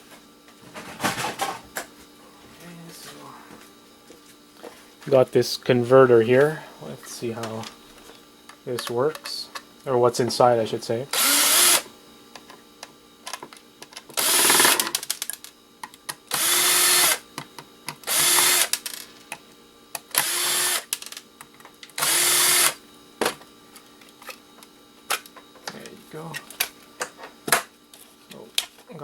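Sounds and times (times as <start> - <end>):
power drill backing out screws: 11.1 - 11.8, 14.2 - 14.8, 16.3 - 17.2, 18.1 - 18.7, 22.0 - 22.8.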